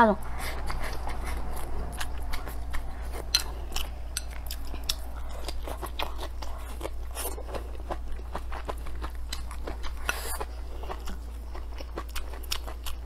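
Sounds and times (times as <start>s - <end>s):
steady low hum: 0.0s - 13.0s
person chewing crunchy food: 0.3s - 13.0s.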